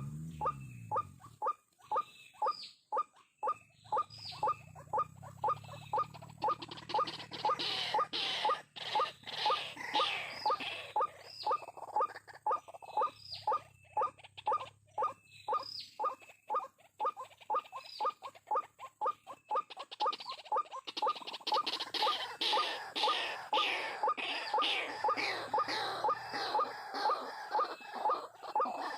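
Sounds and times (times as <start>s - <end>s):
waterhen calling: 0.0s - 28.9s.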